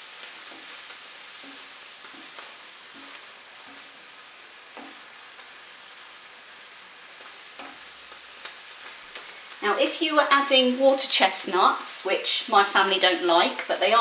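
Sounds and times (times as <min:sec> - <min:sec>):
wooden spatula scraping a pan: 0:00.0 - 0:05.6
food sizzling in a pan: 0:00.0 - 0:14.0.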